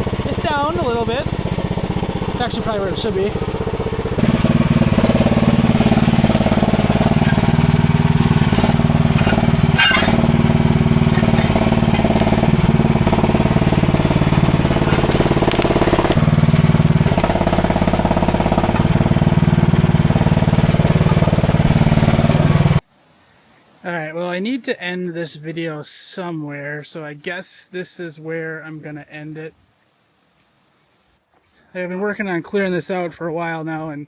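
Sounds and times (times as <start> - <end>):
small engine running: 0.0 - 22.8.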